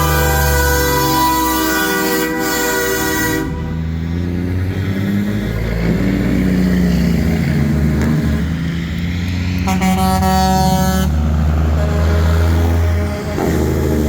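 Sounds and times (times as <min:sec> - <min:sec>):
air horn blast: 0:00.0 - 0:03.9, 0:09.6 - 0:14.0
truck engines droning: 0:00.0 - 0:14.0.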